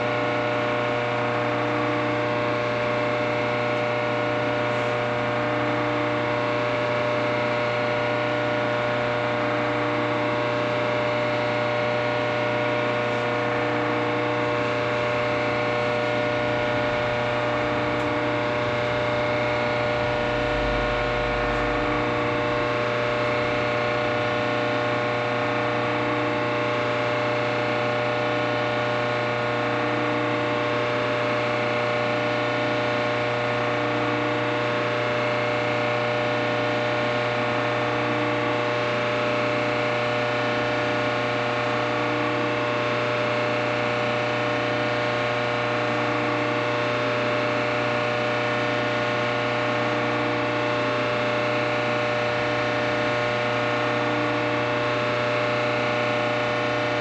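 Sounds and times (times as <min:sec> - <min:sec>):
whining machine hum: 0:00.0 - 0:57.0
faint pulse: 0:14.8 - 0:24.8
brief low rumble: 0:15.8 - 0:24.6.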